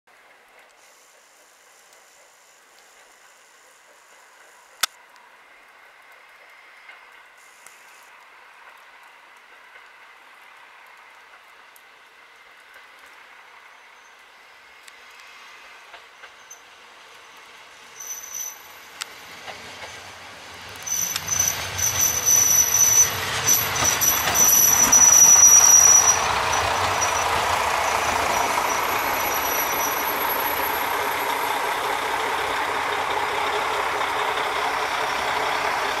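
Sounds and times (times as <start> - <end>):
train wheels and brakes squealing: 13.6 - 36.0
clacking train wheels: 15.8 - 36.0
low engine rumble: 19.0 - 36.0.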